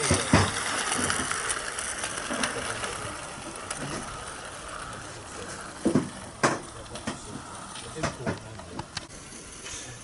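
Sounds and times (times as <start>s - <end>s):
model train rattling on track: 0.0s - 10.0s.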